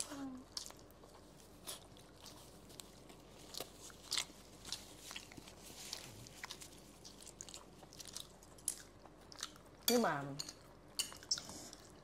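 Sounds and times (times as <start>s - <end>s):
chewing and biting food: 0.4s - 9.9s.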